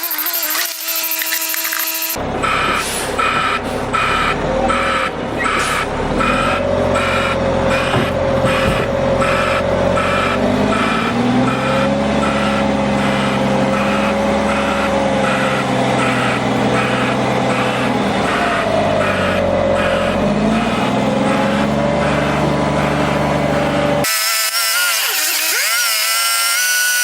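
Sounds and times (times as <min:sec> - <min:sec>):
heavy vehicle engine running: 0:02.2 - 0:24.1
backup alarm beeping: 0:02.4 - 0:23.5.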